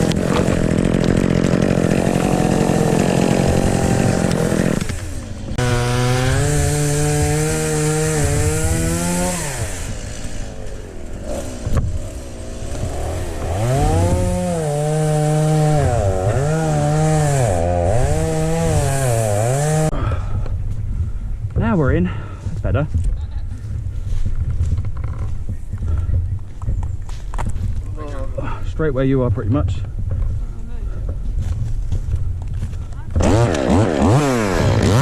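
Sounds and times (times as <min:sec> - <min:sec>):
chainsaw cutting wood: 0:00.0 - 0:20.0, 0:33.2 - 0:35.0.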